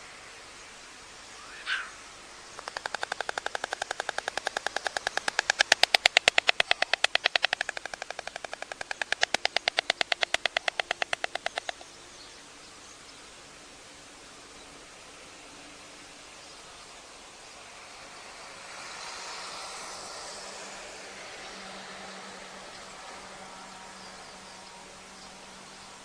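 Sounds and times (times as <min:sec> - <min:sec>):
stork clattering its bill: 0:02.6 - 0:11.8.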